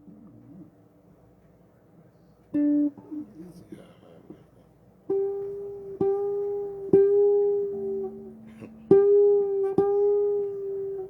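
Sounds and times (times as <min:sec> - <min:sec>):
bass guitar notes: 0:05.1 - 0:11.0.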